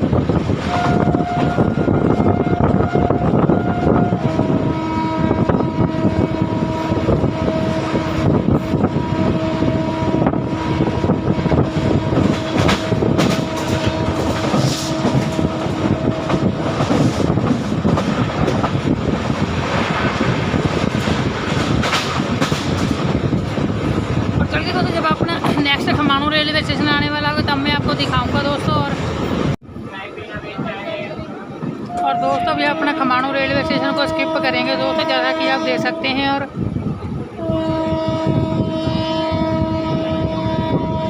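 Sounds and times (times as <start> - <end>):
train wheels rattling on rails: 0.0 - 41.0
train horn long blast: 0.6 - 16.6, 31.9 - 36.5, 37.3 - 41.0.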